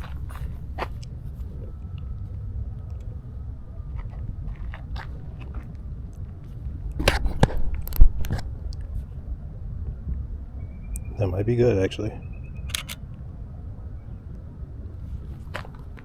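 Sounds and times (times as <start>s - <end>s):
crunching clicks and knocks: 12.7s - 13.1s.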